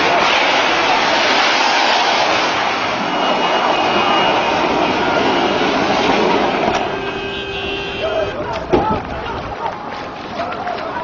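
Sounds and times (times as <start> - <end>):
car driving fast on loose ground: 0.0 - 11.0.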